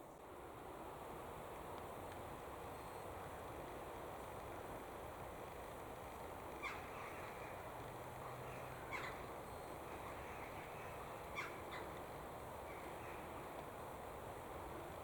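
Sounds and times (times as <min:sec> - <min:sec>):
outdoor background noise: 0:00.0 - 0:15.0
bird calling: 0:08.5 - 0:09.3, 0:10.0 - 0:12.0.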